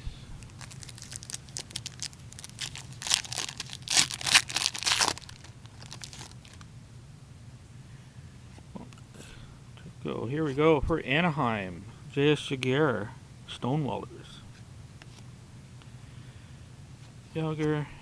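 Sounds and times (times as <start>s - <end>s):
wrapper tearing and crinkling: 0.4s - 6.7s.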